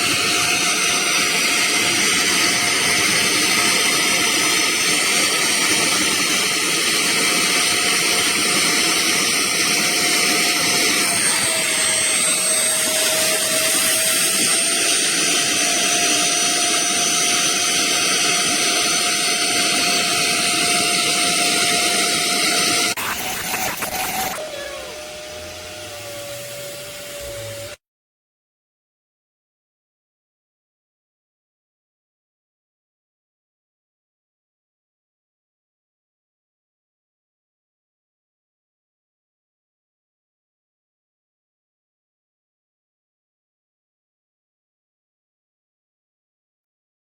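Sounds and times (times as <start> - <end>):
suction motor whining: 0.0 - 27.8.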